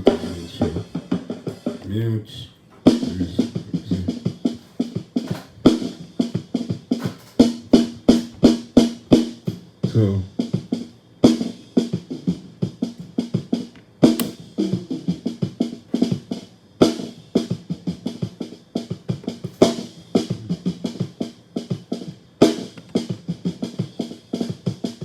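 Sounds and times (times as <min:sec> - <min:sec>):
drum kit playing: 0:00.0 - 0:25.0.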